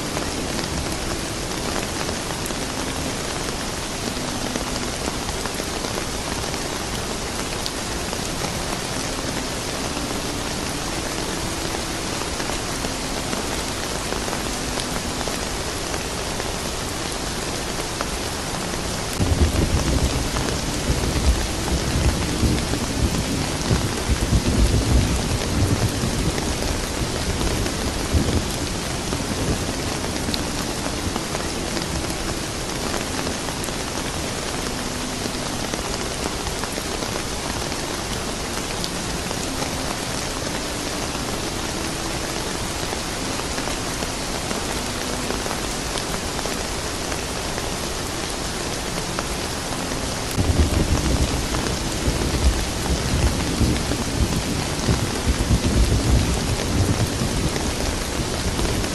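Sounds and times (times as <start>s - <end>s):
steady rain falling: 0.0s - 58.9s
low thunder rumbling: 19.1s - 30.4s, 50.4s - 58.9s.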